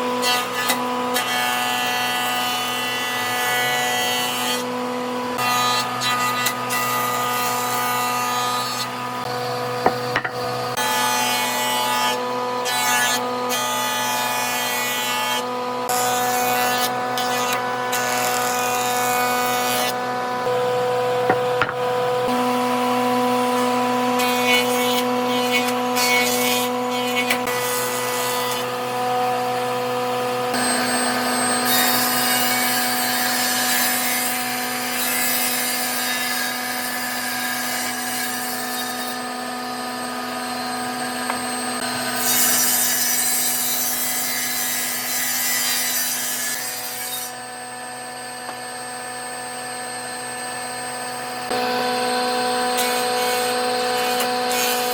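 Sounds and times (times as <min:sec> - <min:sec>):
tool grinding wood: 0:07.7 - 0:11.0, 0:21.2 - 0:22.4, 0:37.4 - 0:49.4
power tool motor hum: 0:09.2 - 0:10.8, 0:21.2 - 0:22.2, 0:38.9 - 0:43.0, 0:46.5 - 0:54.9.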